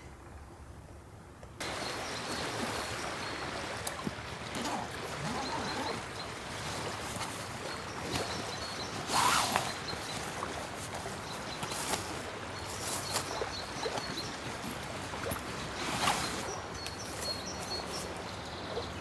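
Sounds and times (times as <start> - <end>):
outdoor background hiss: 0.0 - 5.4.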